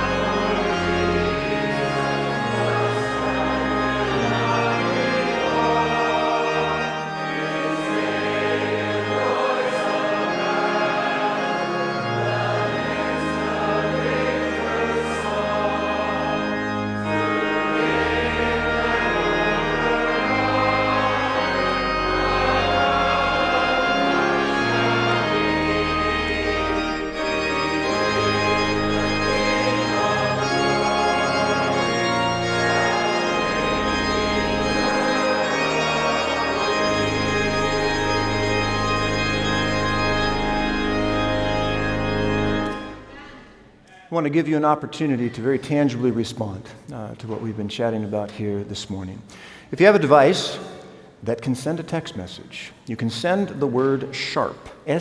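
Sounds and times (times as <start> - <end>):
choir singing: 0.0 - 43.8
organ playing chords: 0.0 - 45.5.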